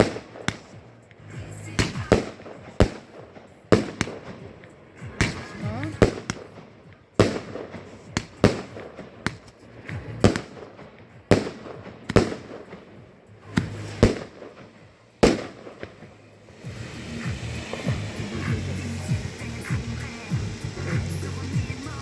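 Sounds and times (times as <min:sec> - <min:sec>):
fireworks bangs: 0:00.0 - 0:22.0.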